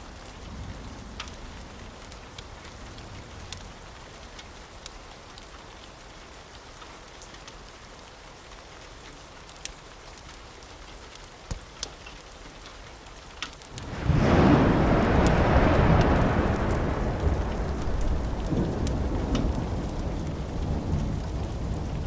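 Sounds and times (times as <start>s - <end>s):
soft rain: 0.0s - 22.0s
thunder rumble: 13.7s - 22.0s.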